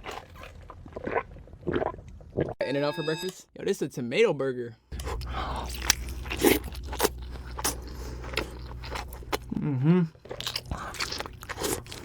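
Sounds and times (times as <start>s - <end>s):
chewing burger crunches: 4.9s - 12.0s.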